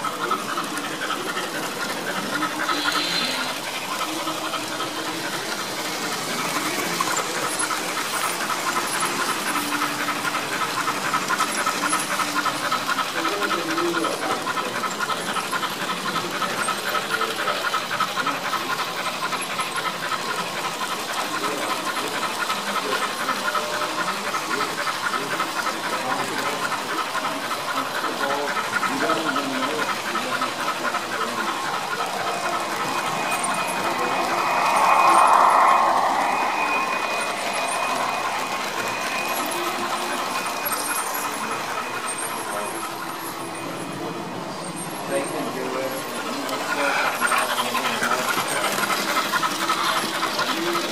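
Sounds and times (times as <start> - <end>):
steam hiss: 0.0 - 13.2, 17.8 - 43.4
model steam locomotive chuffing: 0.0 - 50.9.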